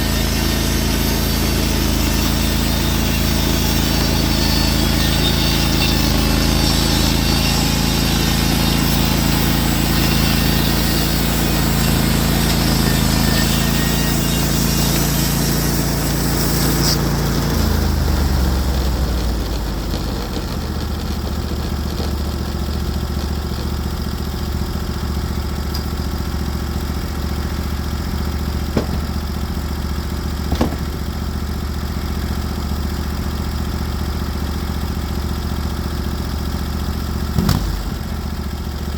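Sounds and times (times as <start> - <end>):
band blade cutting log: 0.0 - 24.4, 28.7 - 29.4, 30.4 - 31.1, 37.4 - 38.0
engine idling: 0.0 - 38.9
sawmill engine running: 0.0 - 38.9.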